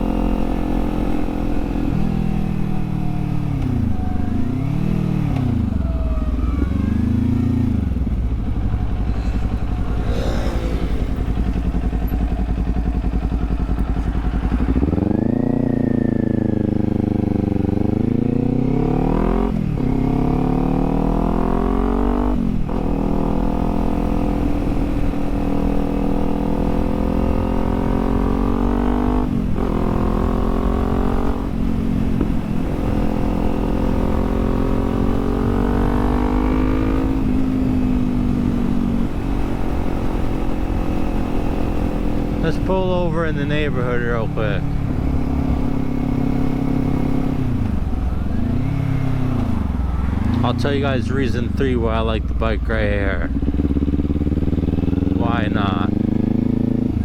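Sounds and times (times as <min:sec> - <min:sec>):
motorcycle engine revving and accelerating: 0:00.0 - 0:57.0.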